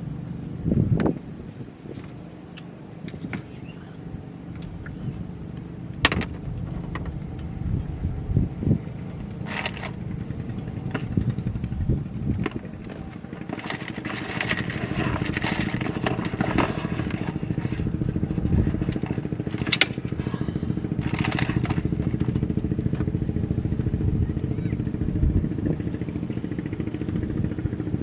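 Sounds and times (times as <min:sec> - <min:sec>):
small engine running: 0:03.0 - 0:28.0
crackling scraping noise: 0:09.0 - 0:23.2.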